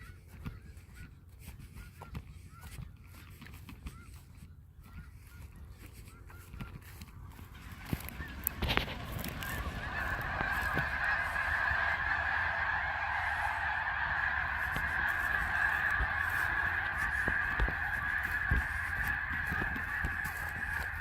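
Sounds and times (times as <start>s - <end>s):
geese honking: 4.8s - 21.0s.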